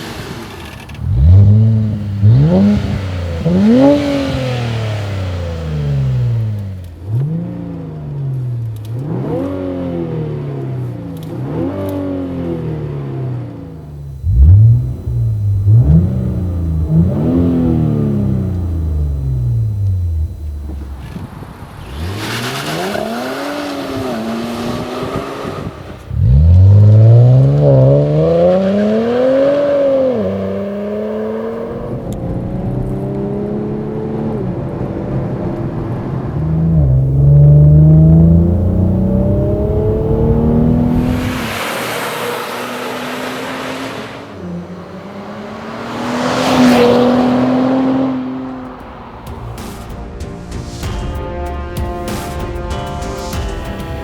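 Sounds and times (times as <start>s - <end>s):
car accelerating through gears: 0.0s - 49.8s
car engine revving: 0.0s - 51.2s
rush of noise: 35.0s - 51.0s.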